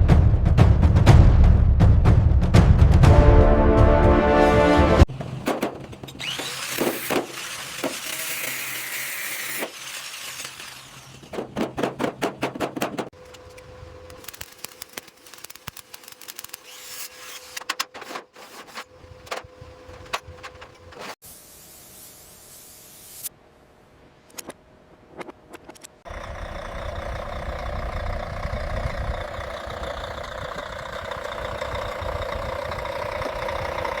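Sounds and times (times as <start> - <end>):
music: 0.0 - 5.1
tool scraping and rubbing strokes: 14.3 - 19.0.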